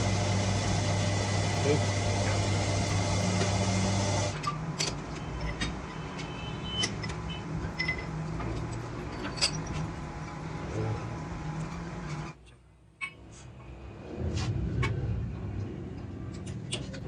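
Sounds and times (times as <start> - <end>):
workshop machine motor humming: 0.0 - 4.4.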